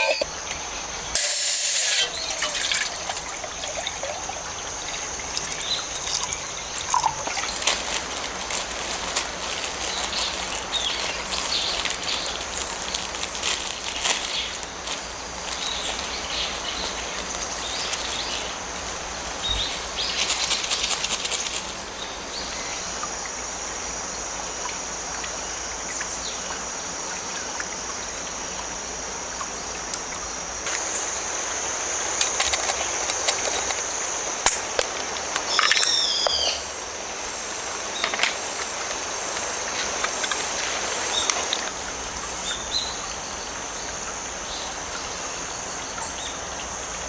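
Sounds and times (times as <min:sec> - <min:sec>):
stream water flowing: 0:00.0 - 0:09.7
crickets trilling: 0:00.0 - 0:47.0.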